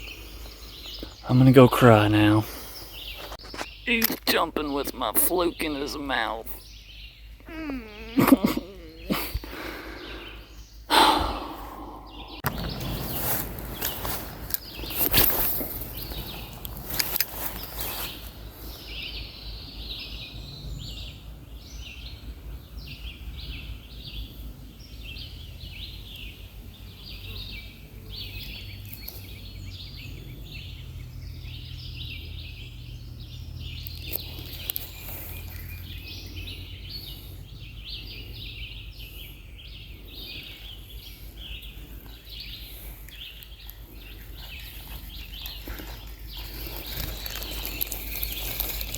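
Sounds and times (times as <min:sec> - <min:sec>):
sharp clicks: 0:03.3 - 0:04.4
steady low rush: 0:09.8 - 0:14.9.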